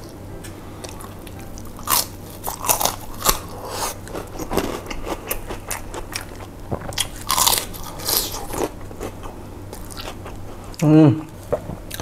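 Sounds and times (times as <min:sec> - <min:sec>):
crunching of fried food: 0:01.7 - 0:10.4.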